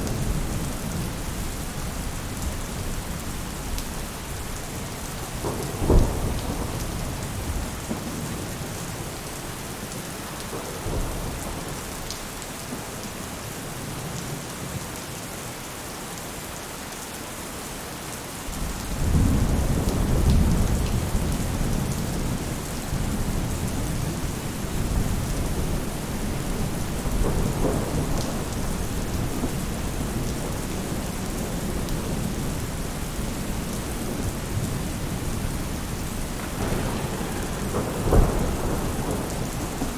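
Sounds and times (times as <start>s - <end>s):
rain on a roof: 0.0s - 39.9s
low thunder rumble: 4.4s - 9.5s, 18.6s - 39.9s
thunder clap: 5.2s - 8.7s, 23.0s - 32.3s, 36.1s - 39.9s.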